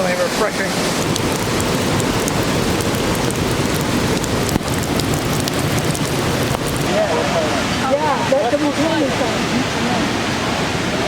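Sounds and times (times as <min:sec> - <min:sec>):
waterfall pouring: 0:00.0 - 0:07.4.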